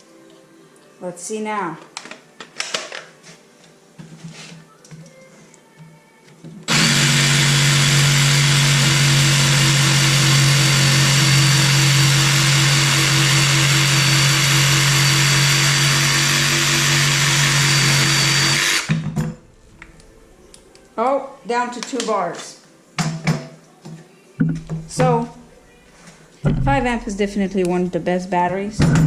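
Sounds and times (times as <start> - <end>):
jigsaw sawing through wood: 6.7 - 19.0.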